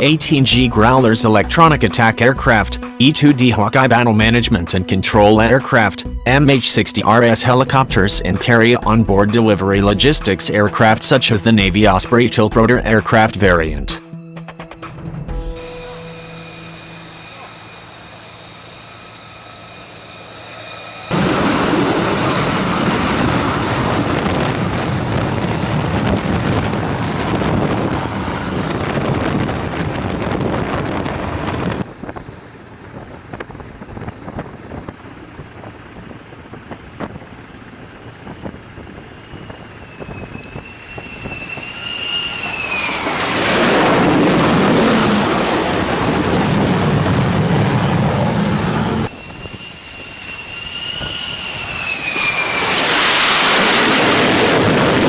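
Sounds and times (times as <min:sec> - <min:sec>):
high turbine whine: 0:14.6 - 0:55.0
jet engine roar: 0:15.3 - 0:55.0.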